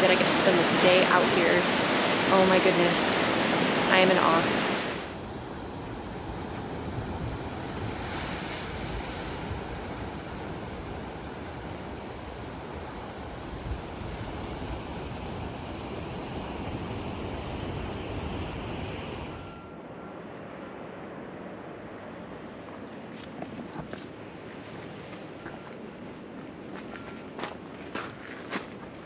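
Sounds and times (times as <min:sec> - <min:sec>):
wind on microphone: 0:00.0 - 0:19.6
surf on rocky shore: 0:00.0 - 0:19.8.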